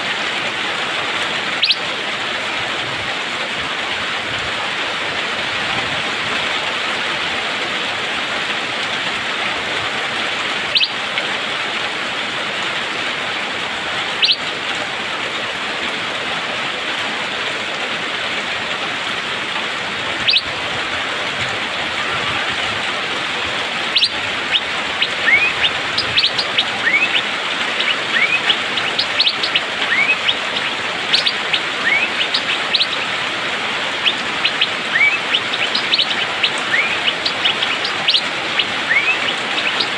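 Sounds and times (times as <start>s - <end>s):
rain hissing: 0.0s - 39.9s
bird calling and whistling: 1.6s - 1.9s, 10.7s - 11.0s, 14.2s - 14.5s, 20.2s - 20.6s, 21.8s - 22.8s, 23.8s - 39.9s.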